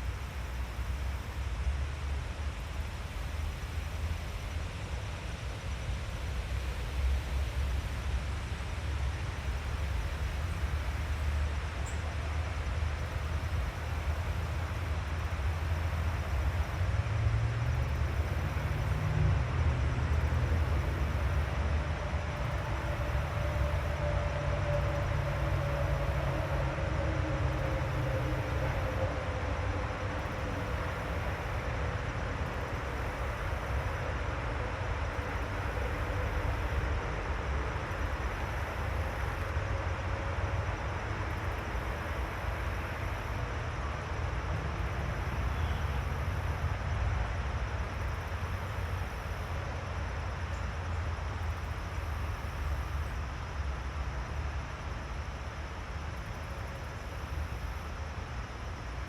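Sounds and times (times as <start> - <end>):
faint hum falling in pitch: 17.8 - 46.6.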